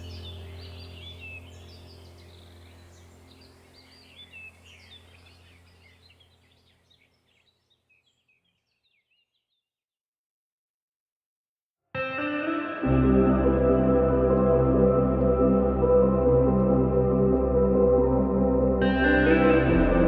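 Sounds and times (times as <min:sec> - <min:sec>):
steady low hum: 0:00.0 - 0:07.2, 0:12.9 - 0:20.0
songbirds chirping and twittering: 0:00.0 - 0:09.8.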